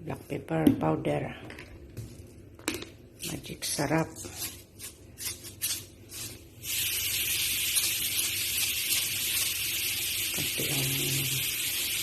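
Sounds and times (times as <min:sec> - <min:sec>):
food sizzling in a pan: 0:06.2 - 0:12.0.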